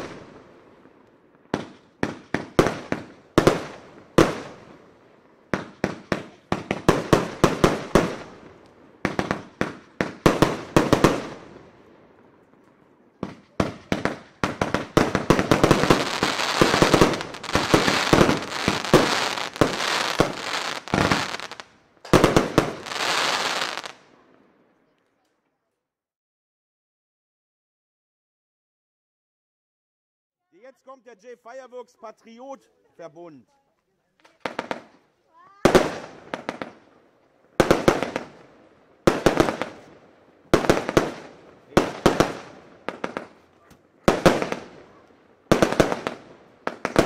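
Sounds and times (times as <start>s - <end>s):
firework bursting reports: 13.3s - 23.9s.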